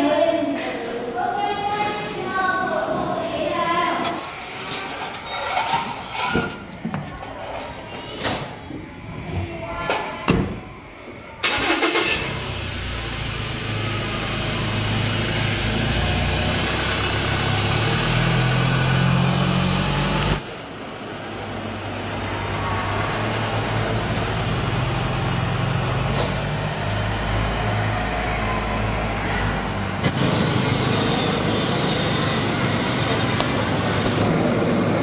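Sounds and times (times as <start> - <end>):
vehicle engine starting and running: 11.4 - 35.0.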